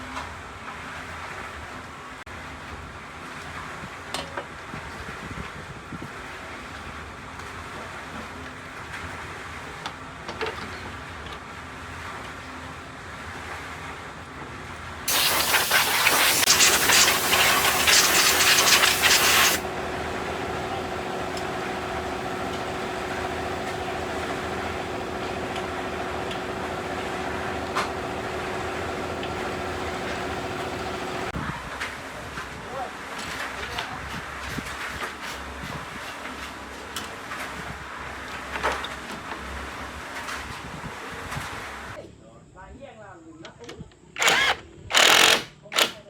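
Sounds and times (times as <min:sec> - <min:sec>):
mechanical hum with held tone: 0:14.8 - 0:33.0
loud hissing spray: 0:15.1 - 0:31.3.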